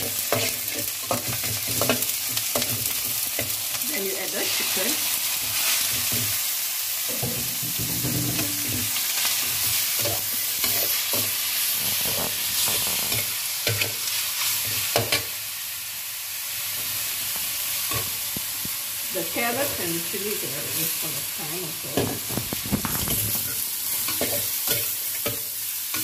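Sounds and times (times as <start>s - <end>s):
metal spatula scraping a pan: 0.0s - 3.6s, 7.1s - 15.3s, 21.9s - 26.0s
chicken sizzling in hot oil: 0.0s - 26.0s.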